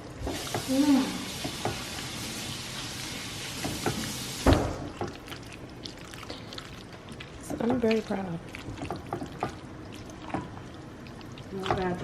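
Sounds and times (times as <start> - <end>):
food sizzling in a pan: 0.2 - 4.7.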